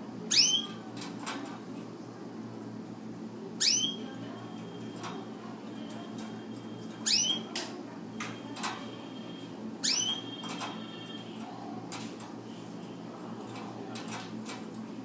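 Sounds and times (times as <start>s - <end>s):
canary rising whistle: 7.0s - 7.5s, 9.3s - 10.4s.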